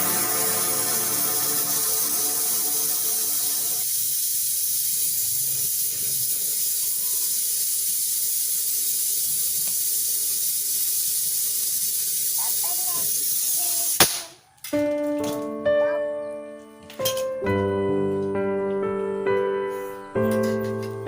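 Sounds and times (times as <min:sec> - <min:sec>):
background music: 0:00.0 - 0:03.8, 0:15.3 - 0:21.0
loud hiss of rushing air: 0:00.0 - 0:04.8.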